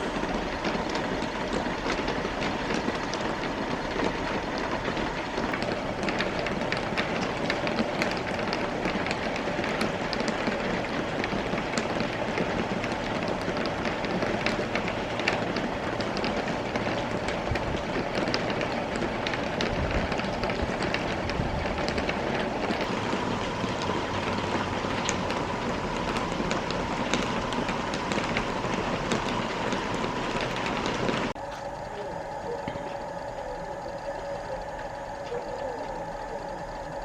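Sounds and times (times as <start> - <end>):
faint steady hum: 0.0 - 37.0
rain and wet snow pattering: 0.0 - 37.0.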